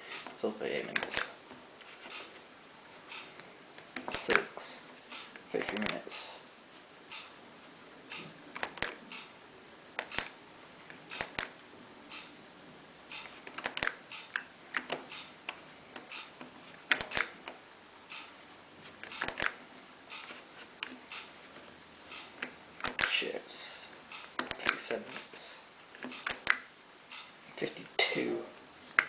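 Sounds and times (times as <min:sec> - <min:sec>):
washing machine control panel clicks: 0:19.1 - 0:20.2.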